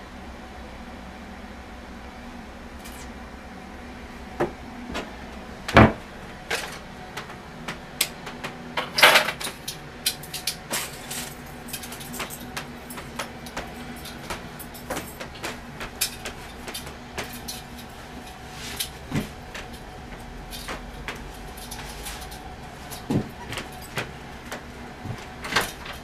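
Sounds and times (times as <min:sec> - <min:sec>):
steady low hum: 0:00.0 - 0:26.0
handling knocks and clicks: 0:05.7 - 0:26.0.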